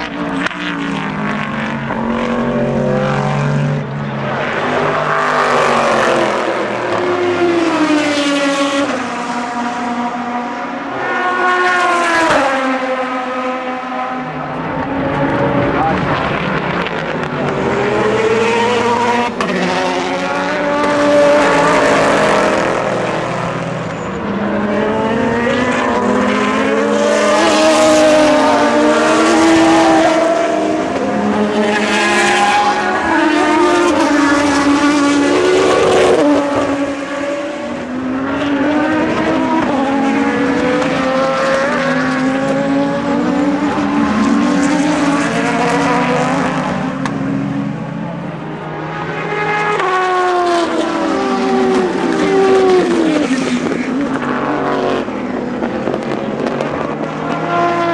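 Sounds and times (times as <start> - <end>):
race cars passing at speed: 0.0 - 57.9.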